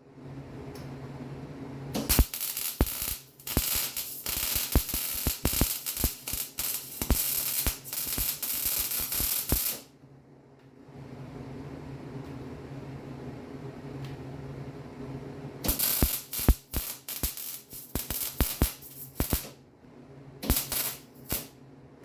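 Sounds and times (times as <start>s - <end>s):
steady low hum: 0.0s - 22.0s
arc welding crackling: 2.0s - 9.9s, 15.7s - 19.5s, 20.4s - 21.5s.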